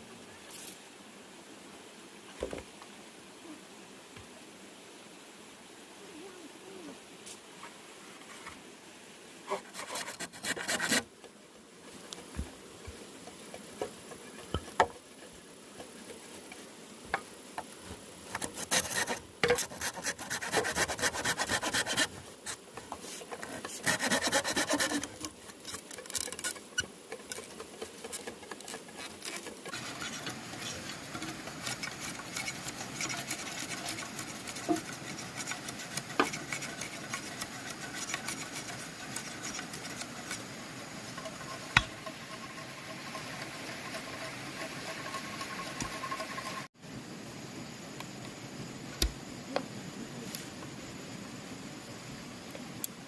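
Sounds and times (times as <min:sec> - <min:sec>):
tools scraping bamboo: 0:09.5 - 0:11.1, 0:18.3 - 0:46.7
knocks on bamboo: 0:41.7 - 0:42.0.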